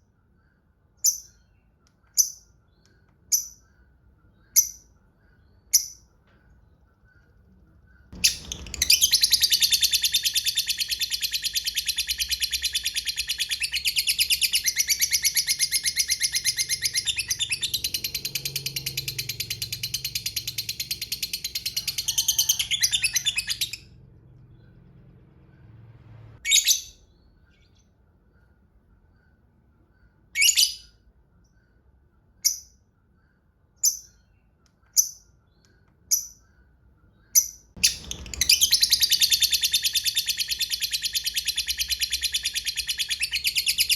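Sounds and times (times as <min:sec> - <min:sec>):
lovebird shrill chatter: 0:37.8 - 0:42.2.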